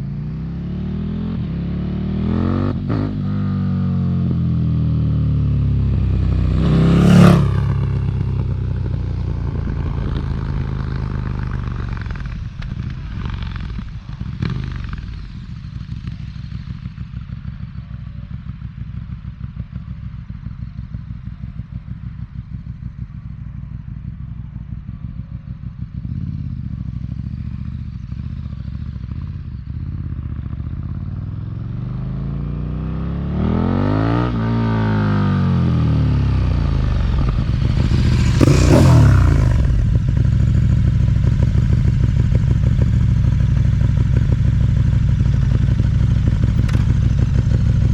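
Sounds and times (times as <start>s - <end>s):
motorcycle engine revving and idling: 0.0s - 47.9s
exhaust cracks: 37.0s - 42.9s, 45.1s - 47.9s.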